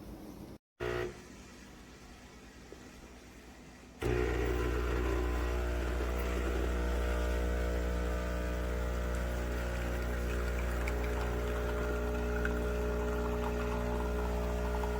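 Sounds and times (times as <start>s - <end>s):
espresso machine pump humming: 0.8s - 1.2s, 4.0s - 14.9s.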